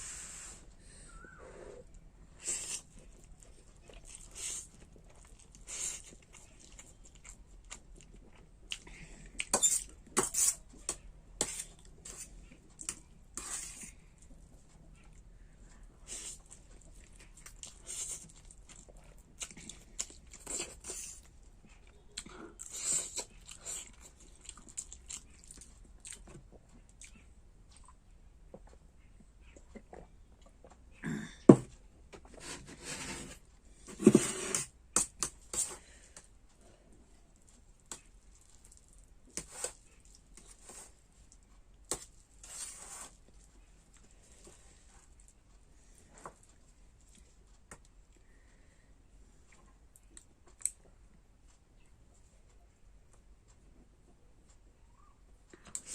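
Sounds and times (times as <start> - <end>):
person chewing noodles: 2.4 - 10.8, 11.5 - 28.8, 29.4 - 30.9.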